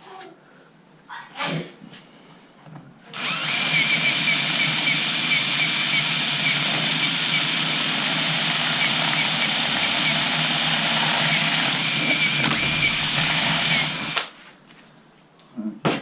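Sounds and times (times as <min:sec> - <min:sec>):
cordless drill whining: 0:03.1 - 0:14.4.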